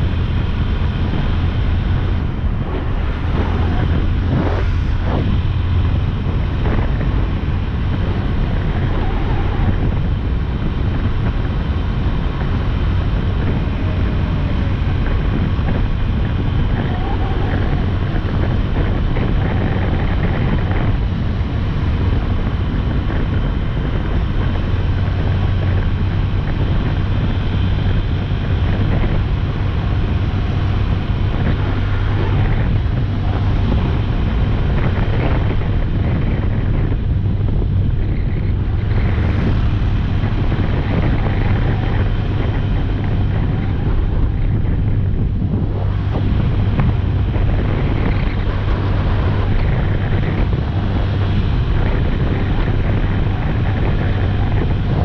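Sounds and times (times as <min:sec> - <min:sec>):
motorcycle engine cruising: 0:00.0 - 0:55.0
wind on microphone: 0:00.0 - 0:55.0.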